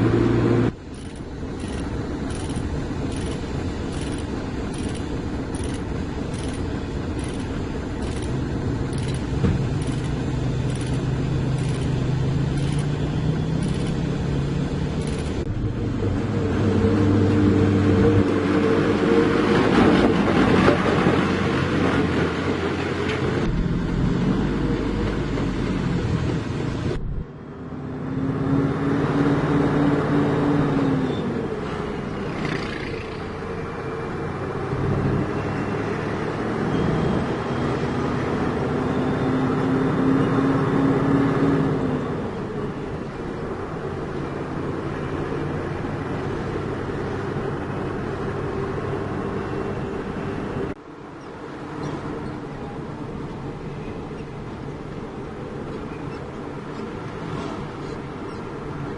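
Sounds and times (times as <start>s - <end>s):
diesel engine revving: 0.0s - 27.0s.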